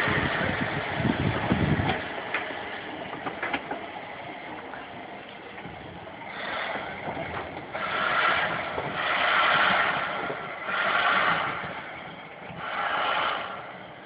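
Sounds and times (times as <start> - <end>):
steam locomotive chuffs: 0.0 - 14.0.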